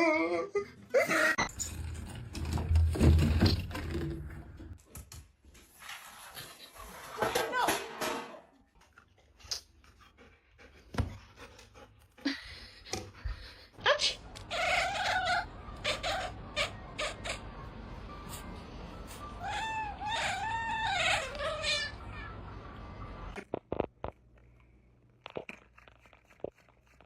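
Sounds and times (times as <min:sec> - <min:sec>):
cat meowing: 0:19.4 - 0:22.4.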